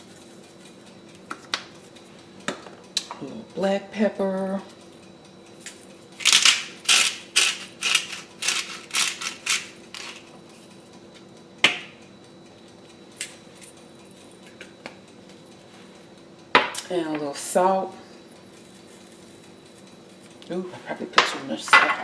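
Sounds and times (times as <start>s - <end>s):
pepper mill grinding: 5.6s - 10.4s.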